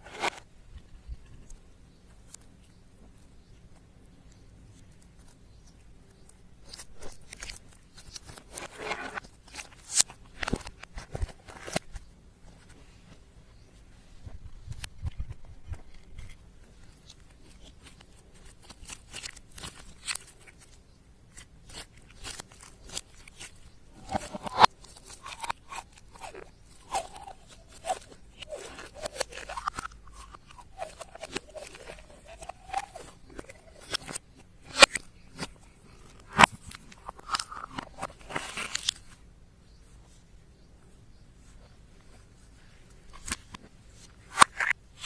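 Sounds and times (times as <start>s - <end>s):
slime clicking and crackling: 17.0s - 35.5s
slime squelching: 21.3s - 36.4s.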